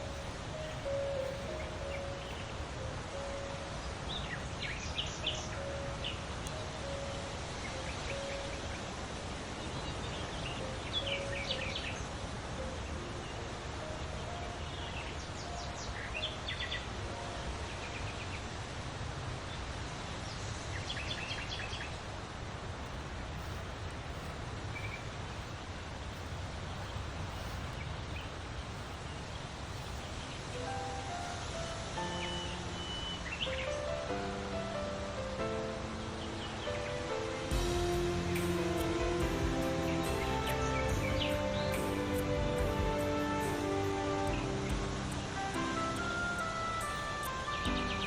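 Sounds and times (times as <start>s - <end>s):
birds singing trills: 0.0s - 2.6s, 22.8s - 34.2s, 35.5s - 48.0s
steady outdoor hiss: 0.0s - 48.0s.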